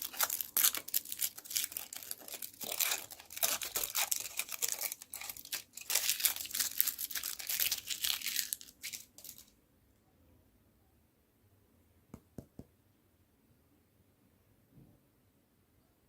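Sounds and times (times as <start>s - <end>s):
candy wrapper crinkling: 0.0s - 9.5s.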